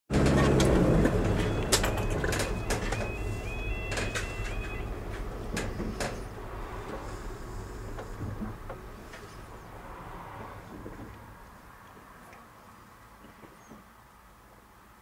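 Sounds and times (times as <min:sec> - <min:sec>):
vehicle engine idling: 0:00.1 - 0:09.9
scattered clicks: 0:00.2 - 0:06.2
level crossing alarm tones: 0:00.4 - 0:06.5.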